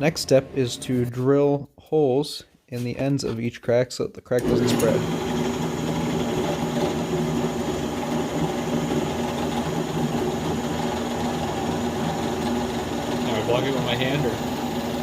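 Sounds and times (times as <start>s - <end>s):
electric drill humming: 4.4s - 15.0s.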